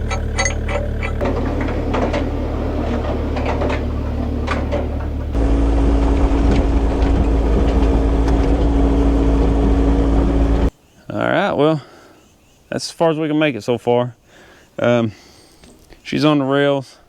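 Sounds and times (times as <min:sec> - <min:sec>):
knocks and clanks: 0:00.0 - 0:10.7
machine engine running: 0:00.0 - 0:10.7.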